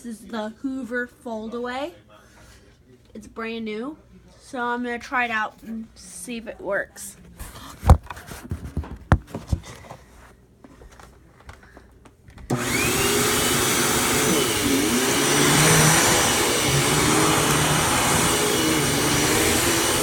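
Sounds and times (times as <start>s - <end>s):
upright vacuum cleaner running: 12.5s - 20.0s.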